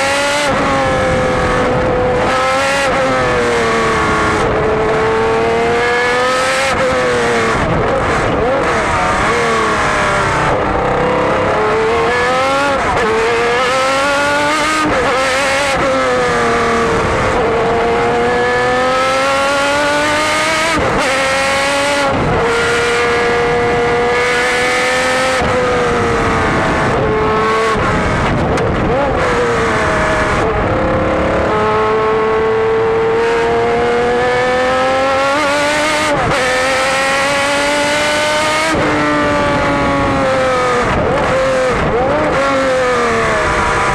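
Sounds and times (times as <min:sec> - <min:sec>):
racing car engine revving: 0:00.0 - 0:43.9.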